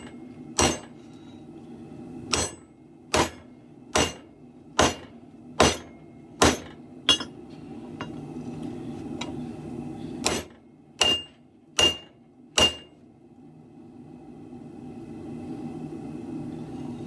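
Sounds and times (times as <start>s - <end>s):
hammer striking steel blade: 0.6s - 1.0s, 2.3s - 2.6s, 3.2s - 3.4s, 4.0s - 4.2s, 4.8s - 7.4s, 10.2s - 12.9s.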